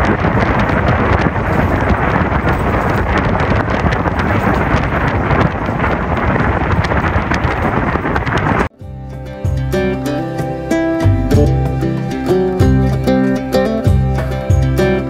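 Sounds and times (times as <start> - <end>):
train wheels rushing on rails: 0.0 - 8.7
wind buffeting the microphone: 0.0 - 15.0.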